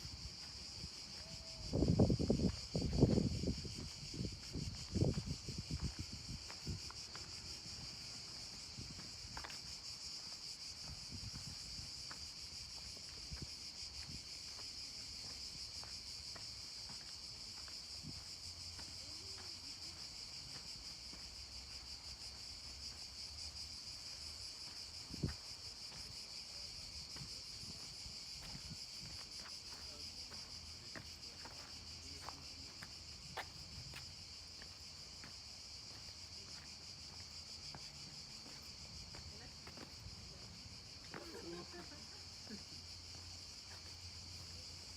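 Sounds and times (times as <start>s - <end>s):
high-pitched insect chorus: 0.0s - 44.9s.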